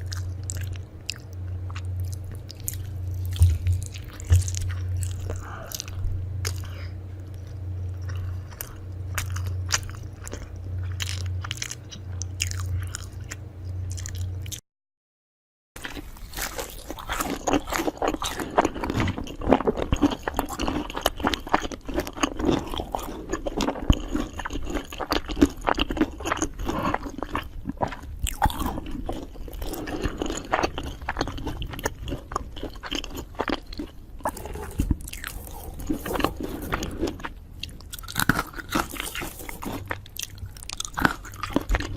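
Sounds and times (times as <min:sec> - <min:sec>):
person chewing crunchy food: 0:00.0 - 0:14.6, 0:15.8 - 0:41.9.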